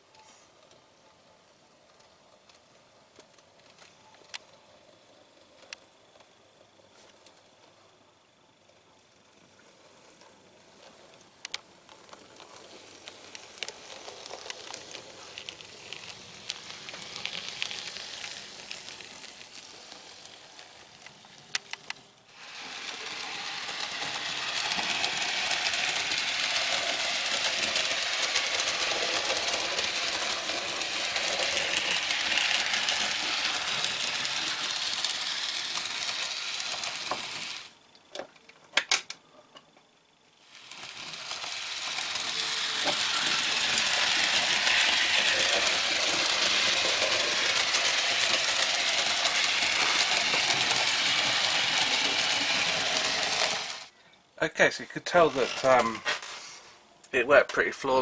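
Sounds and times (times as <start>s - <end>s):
model train motor whirring: 11.5s - 37.8s, 40.4s - 53.9s, 54.7s - 56.7s.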